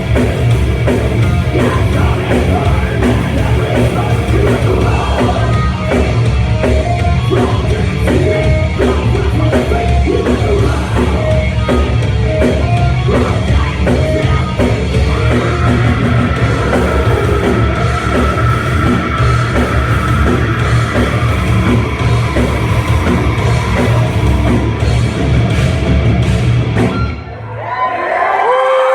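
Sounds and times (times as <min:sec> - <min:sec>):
heavy rock music: 0:00.0 - 0:28.0
drums: 0:00.0 - 0:28.9
person singing: 0:01.2 - 0:23.8.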